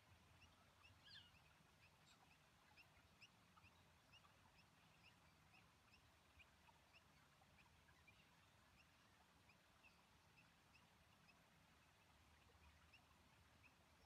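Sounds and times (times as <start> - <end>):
faint high bird chirps: 0.0 - 11.4.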